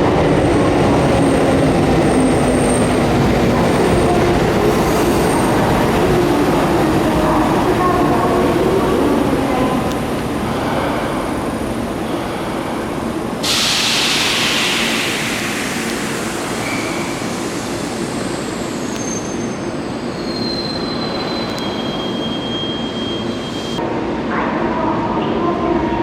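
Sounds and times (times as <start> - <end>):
train running hum: 0.0 - 20.1
loud hiss: 13.2 - 19.4.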